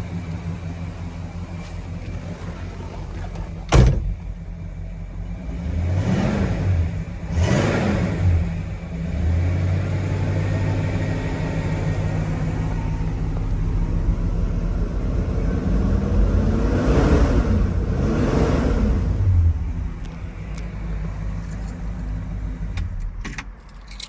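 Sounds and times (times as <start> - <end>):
engine throttle blips: 0.0 - 23.2
car engine idling: 0.0 - 24.0
sharp thump: 3.7 - 4.4.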